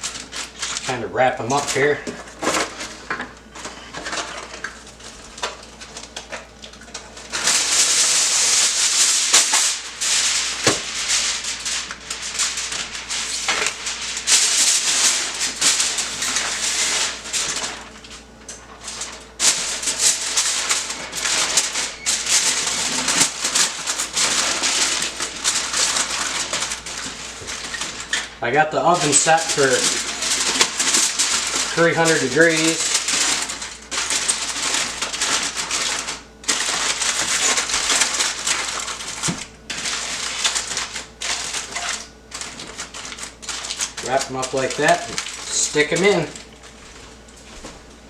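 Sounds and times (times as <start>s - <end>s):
aluminium foil crinkling: 0.0s - 48.0s.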